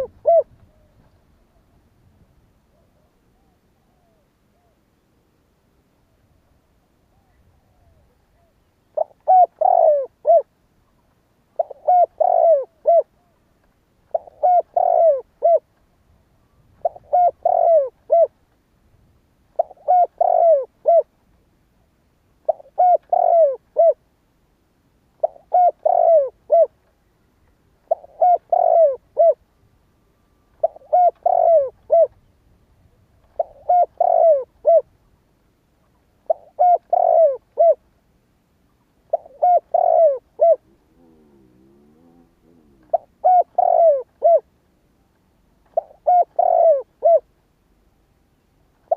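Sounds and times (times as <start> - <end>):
dove cooing: 0.0 - 1.8, 2.7 - 4.8, 7.1 - 10.5, 11.5 - 13.4, 14.1 - 15.7, 16.8 - 18.4, 19.6 - 21.1, 22.4 - 24.0, 25.2 - 26.8, 27.8 - 29.4, 30.6 - 32.2, 32.9 - 34.9, 36.3 - 37.8, 39.0 - 44.5, 45.7 - 47.3.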